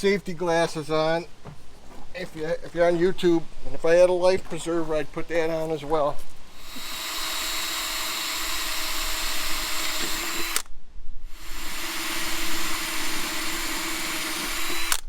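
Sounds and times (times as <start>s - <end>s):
cordless drill running: 6.5s - 10.7s, 11.3s - 15.0s.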